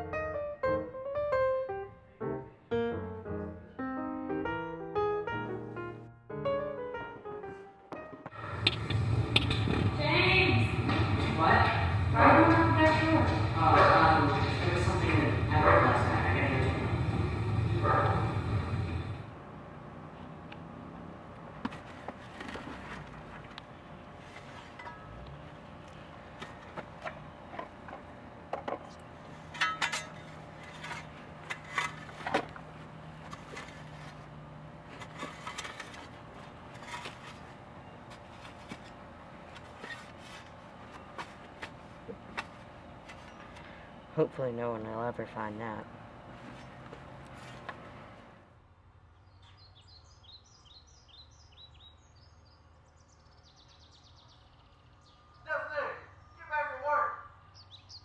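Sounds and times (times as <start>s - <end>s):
steady low hum: 8.4s - 21.5s
songbird singing: 49.1s - 56.6s, 57.3s - 58.0s.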